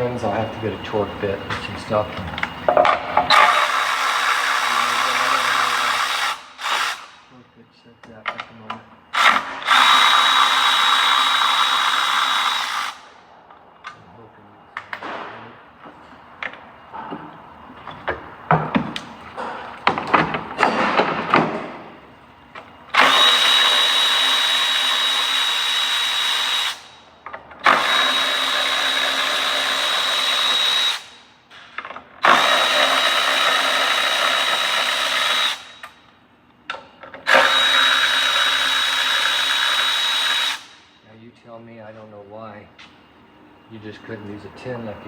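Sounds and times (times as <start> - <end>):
power drill whining: 3.2 - 7.2, 9.1 - 13.1, 22.9 - 27.0, 27.6 - 31.2, 32.2 - 35.8, 37.2 - 40.8.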